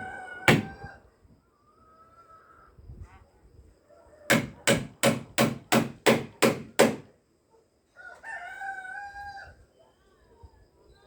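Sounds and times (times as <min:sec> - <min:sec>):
hammer blows on wood: 0:00.0 - 0:00.8, 0:04.3 - 0:07.0
rooster crowing: 0:00.0 - 0:01.0, 0:08.0 - 0:09.6.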